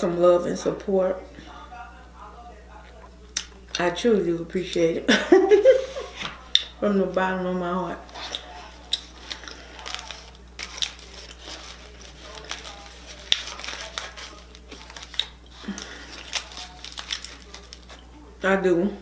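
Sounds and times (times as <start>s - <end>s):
foil crinkling: 8.0s - 18.0s
crunchy chewing: 8.1s - 18.0s.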